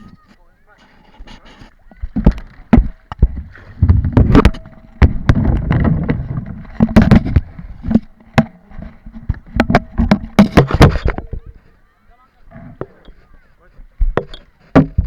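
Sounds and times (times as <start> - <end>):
paddle knocks and thumps: 0.0 - 11.8, 12.4 - 15.0
low rumbling: 2.0 - 11.6.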